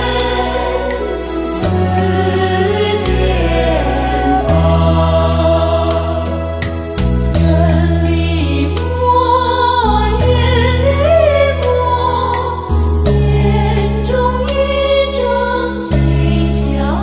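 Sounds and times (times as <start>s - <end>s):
held bass chords: 0.0s - 17.0s
slow sung hymn melody: 0.0s - 17.0s.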